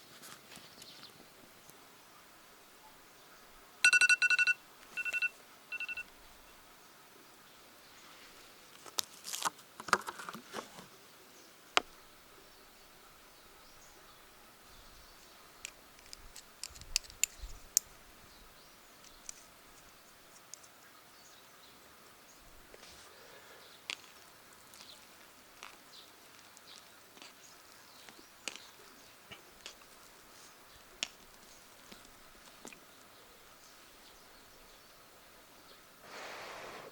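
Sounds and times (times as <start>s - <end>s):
faint outdoor background: 0.0s - 36.9s.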